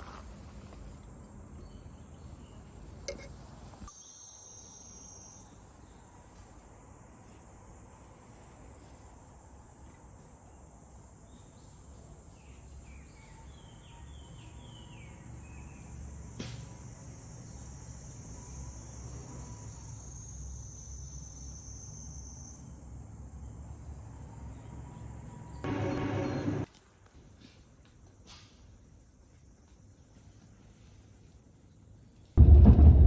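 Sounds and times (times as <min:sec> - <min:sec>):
insects chorus: 0:04.0 - 0:26.7.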